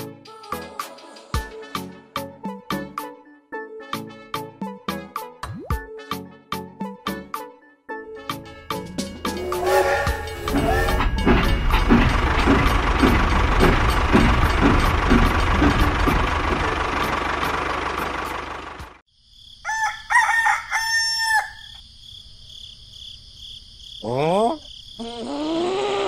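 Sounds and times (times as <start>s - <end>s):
toy locomotive chugging on track: 9.2s - 19.0s
rooster crowing: 9.4s - 10.9s, 19.6s - 21.8s.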